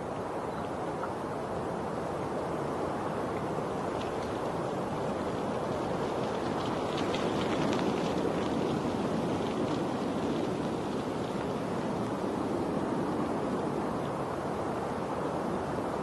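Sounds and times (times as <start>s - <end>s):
light water splashes: 3.2s - 11.6s.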